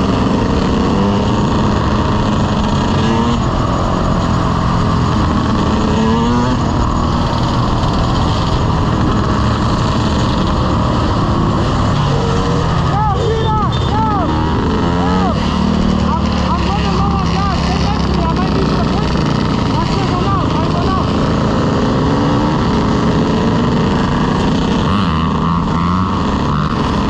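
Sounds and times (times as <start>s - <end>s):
wind noise: 0.0s - 19.8s
dirt bike engine revving: 0.0s - 27.0s.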